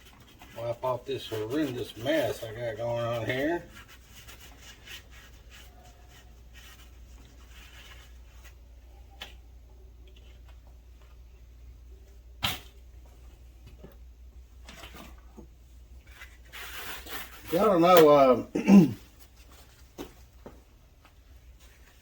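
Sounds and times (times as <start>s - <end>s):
rag rubbing: 0.0s - 8.5s.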